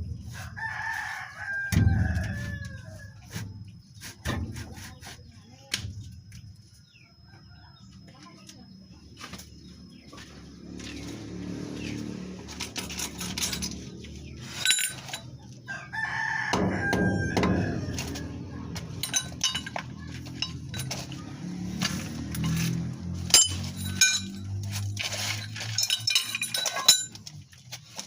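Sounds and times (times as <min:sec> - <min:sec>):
rooster crowing: 0:00.3 - 0:03.4, 0:15.7 - 0:18.7.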